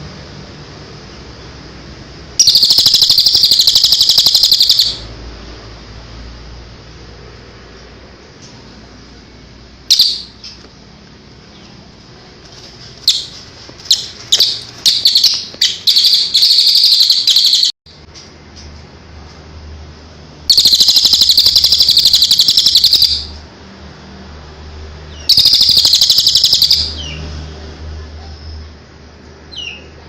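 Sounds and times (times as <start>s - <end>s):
songbird chirps and trills: 2.4s - 5.1s, 9.9s - 10.6s, 12.8s - 17.7s, 20.5s - 23.3s, 25.1s - 27.2s.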